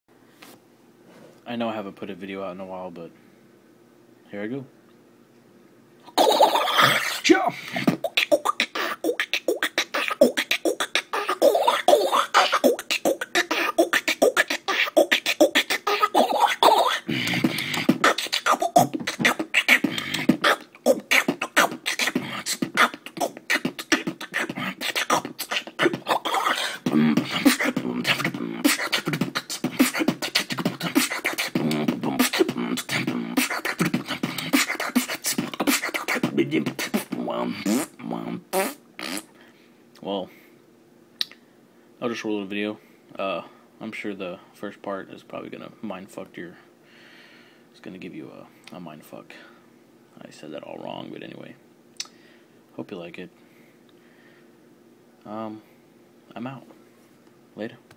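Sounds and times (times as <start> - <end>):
person beatboxing: 6.1 - 39.3.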